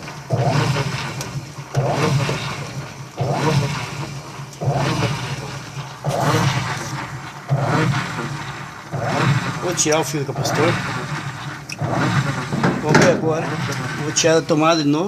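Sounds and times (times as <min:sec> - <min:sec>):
washing machine motor humming: 0:00.0 - 0:15.0.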